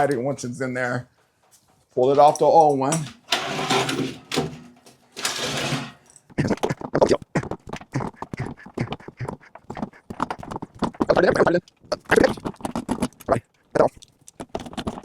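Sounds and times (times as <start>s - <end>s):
scraping on pipe: 2.9s - 6.5s.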